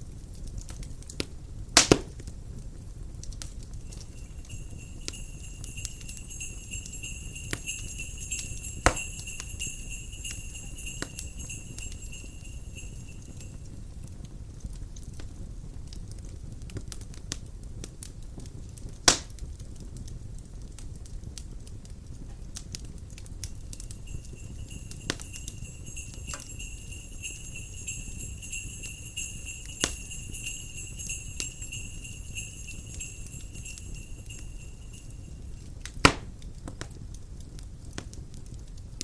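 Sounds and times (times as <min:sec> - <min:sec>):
wood fire crackling: 0:00.0 - 0:39.0
high jingling of bells: 0:03.8 - 0:14.0, 0:23.4 - 0:35.8.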